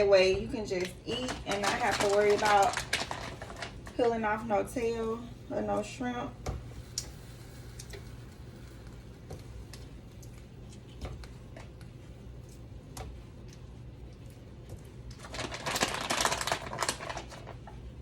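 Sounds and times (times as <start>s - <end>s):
crinkling rustle: 0.8s - 4.2s, 15.1s - 17.8s.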